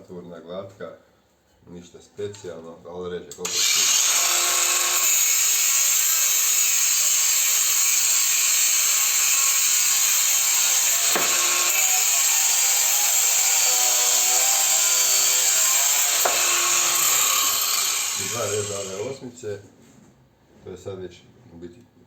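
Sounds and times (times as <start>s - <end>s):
angle grinder cutting steel: 3.4s - 19.2s.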